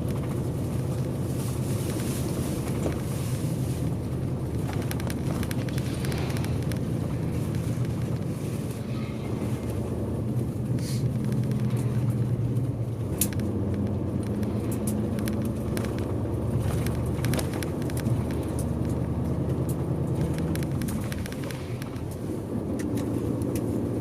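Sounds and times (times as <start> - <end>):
bus engine drone: 0.0 - 24.0
road noise: 0.0 - 24.0.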